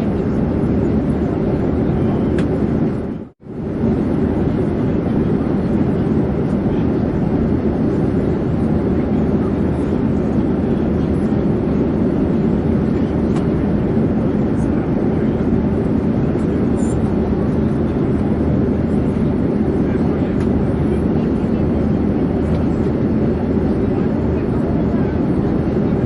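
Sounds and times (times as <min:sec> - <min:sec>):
airplane in flight rumbling: 0:00.0 - 0:26.0.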